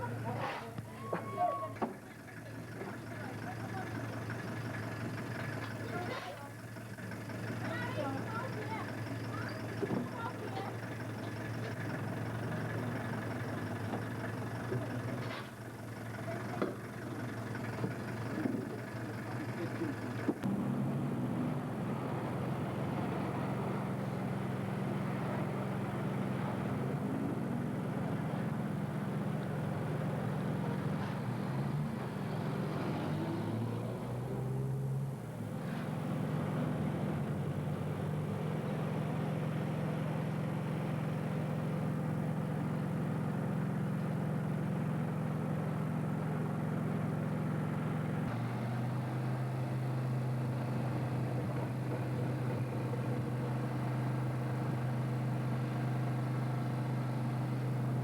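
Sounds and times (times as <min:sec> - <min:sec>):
vehicle engine humming: 0:00.0 - 0:58.0.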